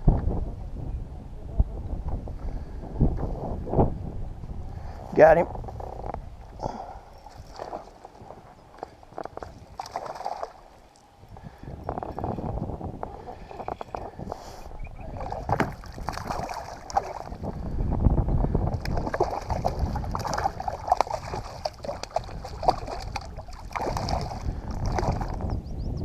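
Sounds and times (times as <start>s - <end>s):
wind rumble on microphone: 0.0s - 26.0s
water sloshing and splashing: 6.4s - 11.2s, 13.1s - 17.7s, 18.7s - 25.5s.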